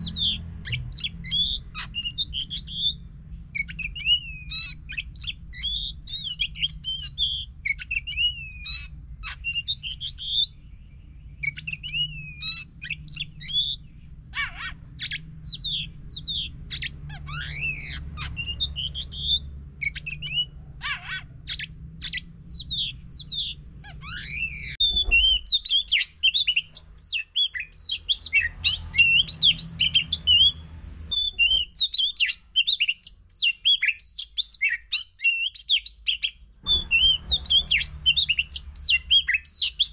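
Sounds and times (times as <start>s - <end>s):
low steady hum: 0.0s - 27.0s
magpie-robin singing: 0.0s - 39.9s.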